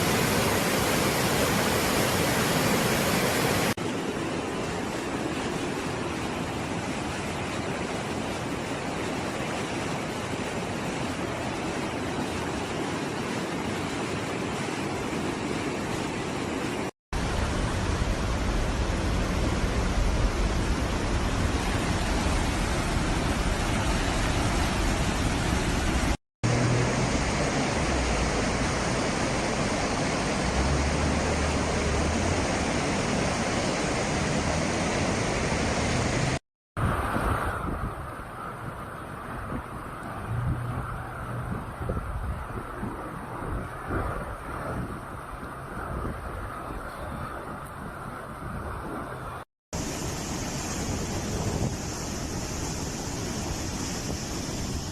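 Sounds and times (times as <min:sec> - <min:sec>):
floodwater rushing: 0:00.0 - 0:54.9
low rumble: 0:17.2 - 0:25.4.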